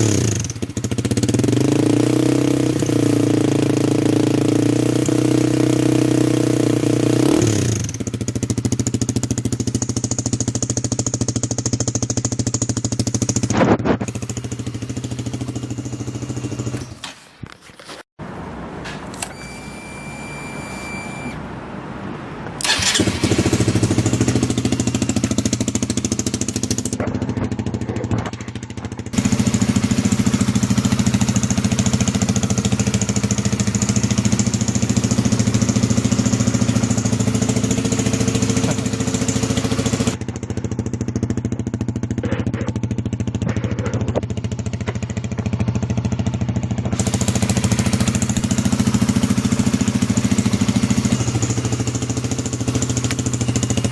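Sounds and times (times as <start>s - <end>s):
motorcycle engine running: 0.0s - 17.0s, 22.6s - 53.9s
electric starter cranking: 19.0s - 21.4s, 22.6s - 23.7s.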